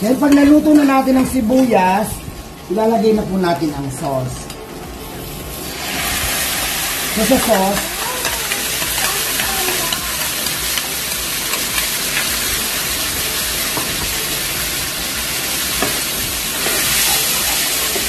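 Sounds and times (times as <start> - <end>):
sauce sizzling in hot oil: 5.0 - 18.0.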